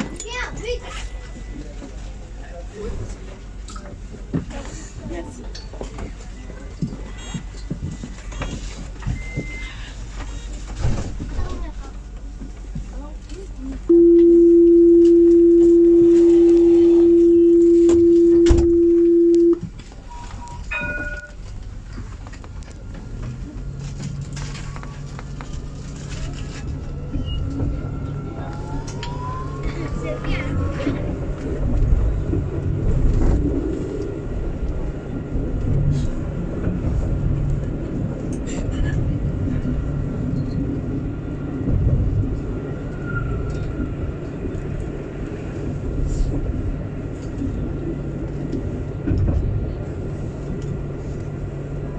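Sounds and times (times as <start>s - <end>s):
tram wheels rumbling on rail: 0.0s - 51.9s
steady electronic warning tone: 13.9s - 19.6s
faint high whine: 13.9s - 20.5s
short quiet electronic tones: 13.9s - 20.6s.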